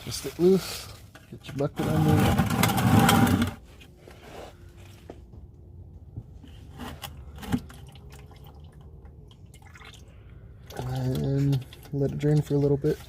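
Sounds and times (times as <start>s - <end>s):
oil dripping into bucket: 7.0s - 13.0s.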